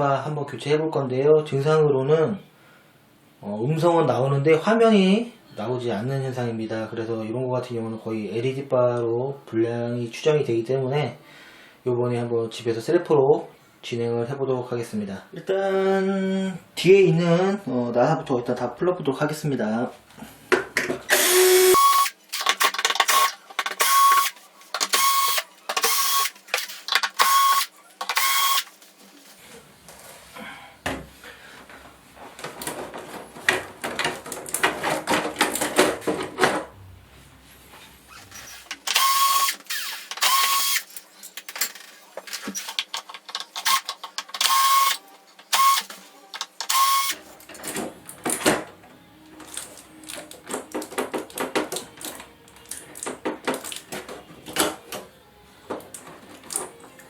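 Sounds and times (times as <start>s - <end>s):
electric screwdriver whining: 21.1s - 28.7s, 38.3s - 40.9s, 42.5s - 47.2s
clattering handling noise: 40.9s - 44.4s.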